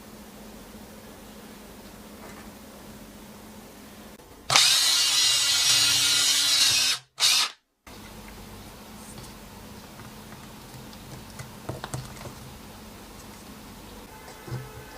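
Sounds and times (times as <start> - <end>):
cordless drill motor whining: 4.5 - 7.6.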